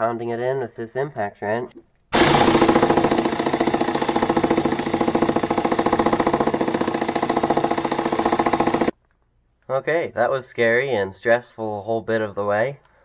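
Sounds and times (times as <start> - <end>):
impact wrench hammering: 2.2 - 8.9.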